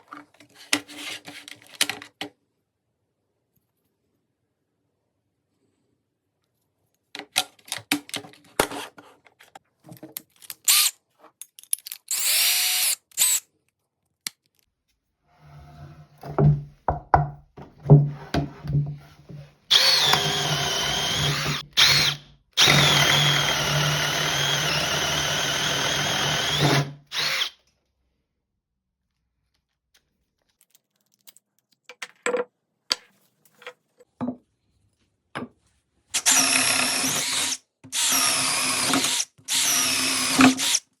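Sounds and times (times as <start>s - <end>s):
power drill whining: 12.1s - 13.4s, 19.7s - 27.6s, 36.2s - 40.8s.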